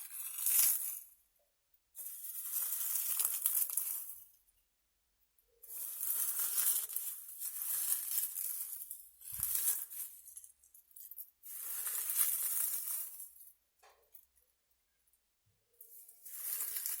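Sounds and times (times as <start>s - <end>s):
close-up rustling and crinkling: 5.7s - 13.4s.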